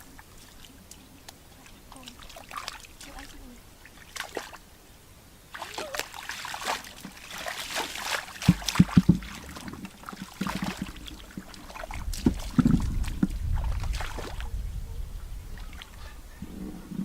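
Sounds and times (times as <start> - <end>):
water sloshing and splashing: 0.0 - 4.8, 5.5 - 14.7, 15.5 - 16.1
dull thumps: 7.0 - 14.1.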